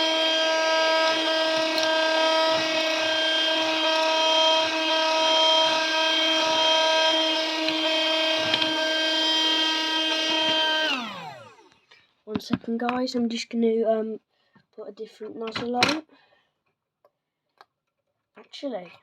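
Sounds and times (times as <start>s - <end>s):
vacuum cleaner motor whine: 0.0s - 11.9s.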